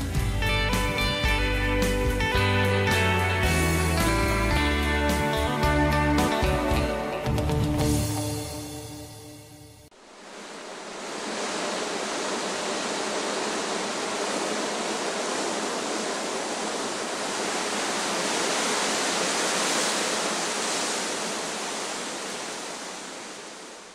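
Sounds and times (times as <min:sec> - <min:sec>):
steady rushing noise: 0:09.9 - 0:23.9.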